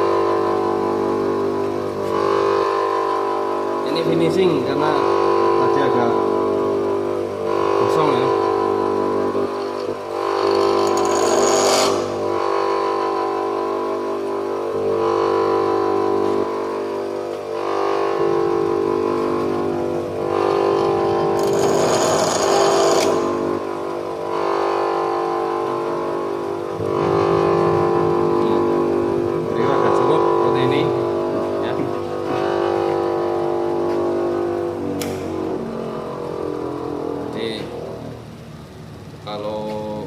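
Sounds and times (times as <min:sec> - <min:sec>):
grinder motor running: 0:00.0 - 0:40.0
tool bit grinding hiss: 0:09.5 - 0:12.2, 0:20.5 - 0:23.5.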